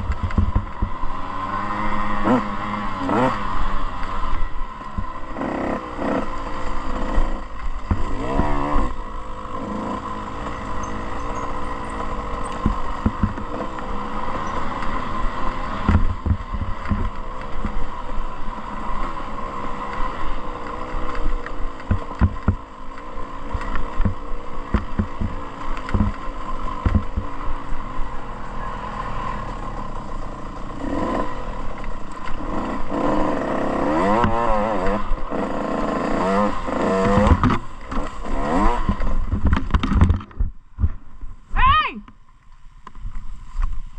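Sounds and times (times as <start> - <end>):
thumps over bumps: 0.0 - 1.0, 7.8 - 8.6, 12.5 - 13.6, 15.8 - 17.8, 21.8 - 22.7, 23.6 - 27.4, 37.0 - 38.2, 38.8 - 41.1
dirt bike engine revving: 0.0 - 40.0.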